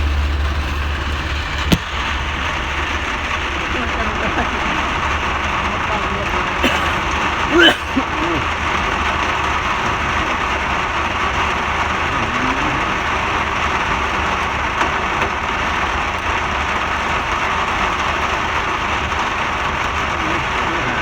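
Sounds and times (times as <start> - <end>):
low rumble: 0.0 - 7.4
steady rain hiss: 0.0 - 21.0.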